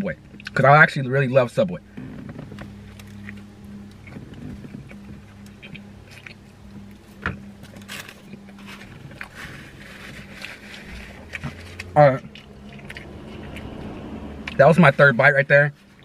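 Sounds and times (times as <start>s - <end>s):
car cabin hum: 0.0s - 16.0s
person chewing food: 2.8s - 14.6s.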